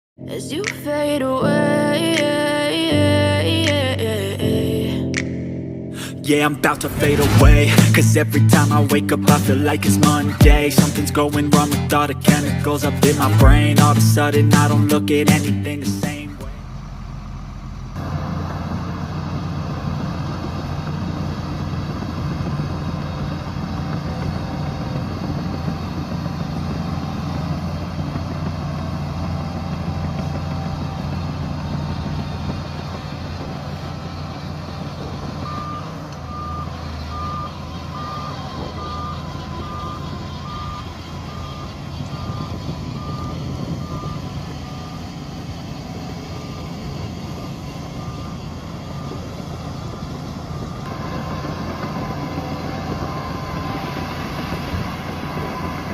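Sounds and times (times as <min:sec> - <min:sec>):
diesel engine running under load: 0:06.0 - 0:55.9
reversing alarm beeping: 0:33.8 - 0:55.9.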